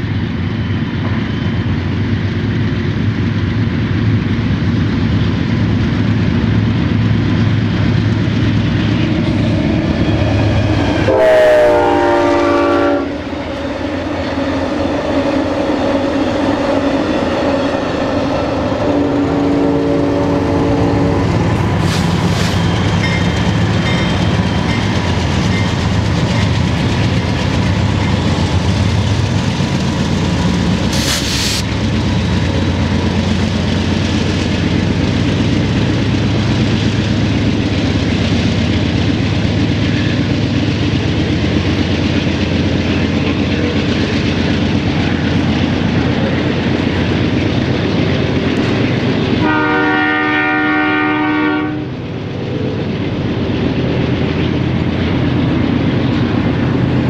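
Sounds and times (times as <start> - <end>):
wheels clacking on rails: 0.0 - 49.8, 51.8 - 57.0
locomotive engine rumble: 0.0 - 57.0
train horn: 10.9 - 13.3, 18.8 - 21.4, 49.4 - 52.0.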